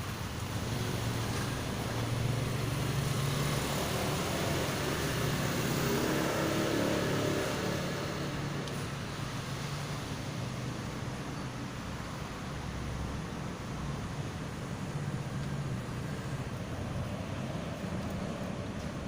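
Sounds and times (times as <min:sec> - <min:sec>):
vehicle engine passing: 0:00.4 - 0:10.2.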